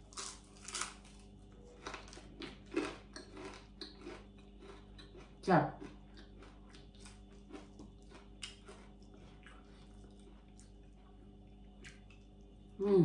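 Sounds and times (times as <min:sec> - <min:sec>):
low steady hum: 0:00.0 - 0:13.0
chewing: 0:01.7 - 0:12.6.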